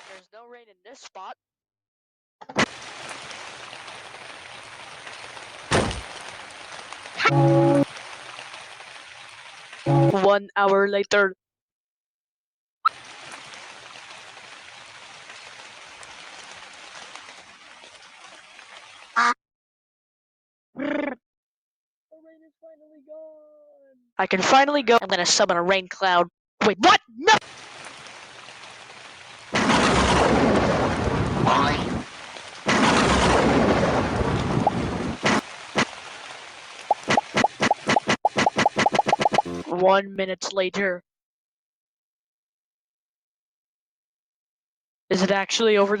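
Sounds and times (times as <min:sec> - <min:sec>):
steady rain falling: 0:02.7 - 0:10.3, 0:12.9 - 0:19.2, 0:27.4 - 0:39.6
thunder claps: 0:29.6 - 0:32.0, 0:32.7 - 0:35.9.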